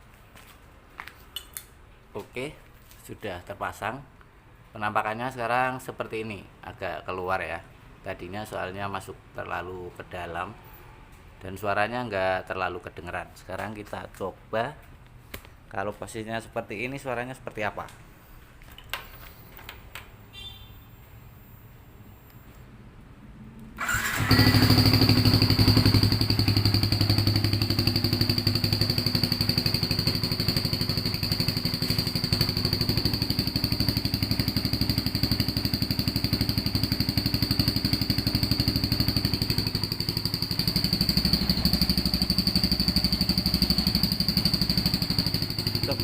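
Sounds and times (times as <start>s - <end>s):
motorcycle engine running: 23.8s - 46.0s
high exhaust whistle: 40.7s - 44.6s.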